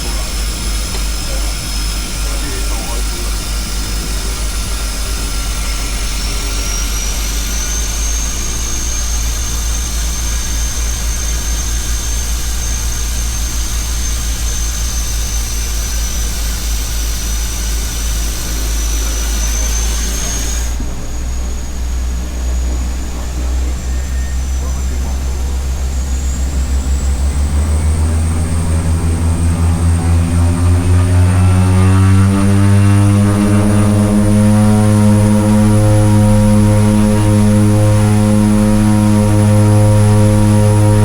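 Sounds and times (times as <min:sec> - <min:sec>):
high engine whine: 0:00.0 - 0:41.0
propeller engines droning: 0:00.0 - 0:41.0.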